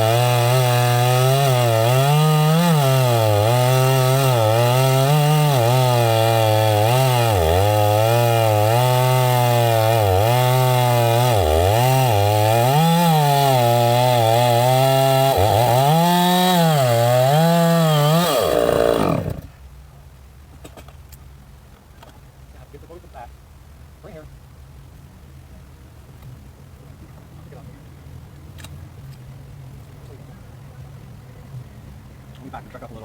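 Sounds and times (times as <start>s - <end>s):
chainsaw cutting wood: 0.0s - 19.5s.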